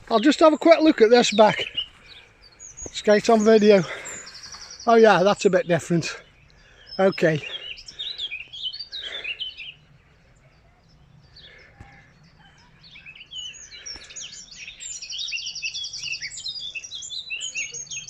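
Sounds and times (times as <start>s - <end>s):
fast bird trill: 0.0s - 9.8s
songbirds chirping: 0.0s - 18.0s.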